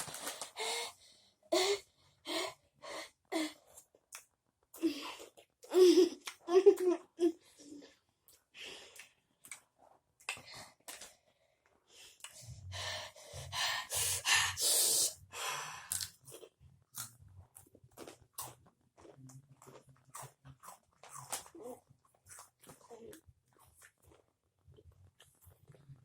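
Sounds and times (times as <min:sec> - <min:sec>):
heavy breaths through mouth: 0:12.0 - 0:15.9
crunchy chips being chewed: 0:15.9 - 0:25.8.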